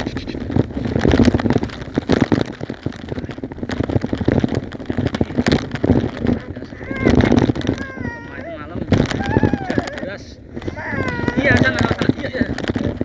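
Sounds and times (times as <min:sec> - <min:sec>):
bicycle rattling over dirt track: 0:00.0 - 0:13.0.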